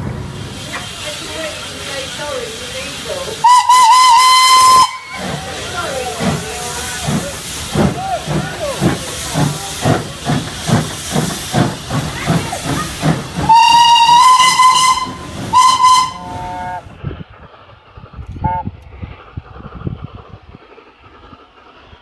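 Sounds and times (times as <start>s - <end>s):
steam locomotive chuffing: 0.0s - 22.0s
steam whistle blasts: 3.4s - 5.4s, 13.4s - 16.8s.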